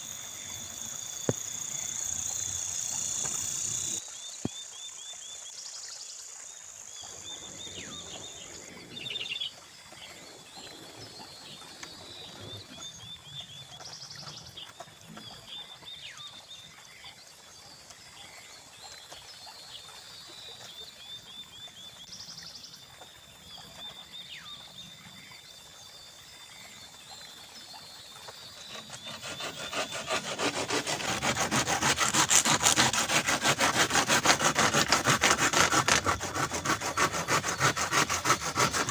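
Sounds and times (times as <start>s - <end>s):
insects chirping in trills: 0.0s - 38.9s
hand saw cutting bamboo: 28.6s - 38.9s.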